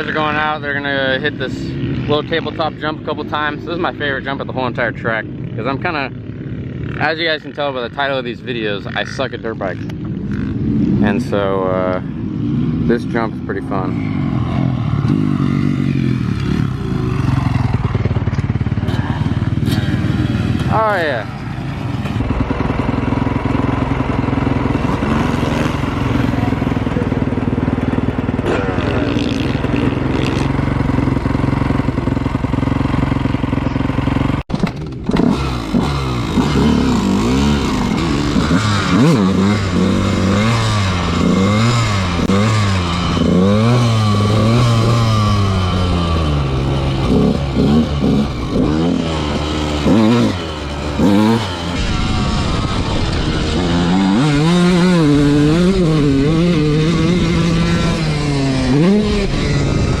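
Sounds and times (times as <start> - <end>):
dirt bike engines revving: 0.0 - 60.0
steady engine drone: 0.0 - 60.0.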